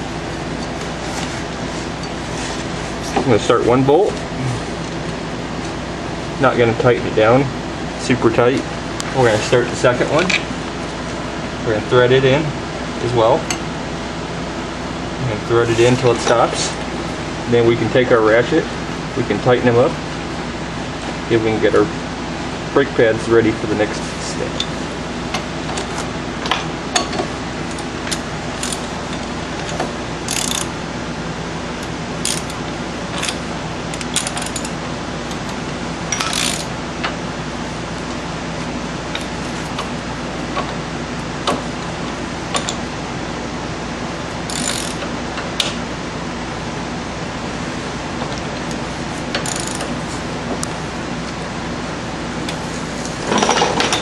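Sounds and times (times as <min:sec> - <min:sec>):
hand ratchet clicking: 0:29.6 - 0:30.7, 0:32.2 - 0:32.6, 0:33.2 - 0:34.8, 0:36.1 - 0:36.7, 0:44.5 - 0:45.0, 0:49.4 - 0:49.9.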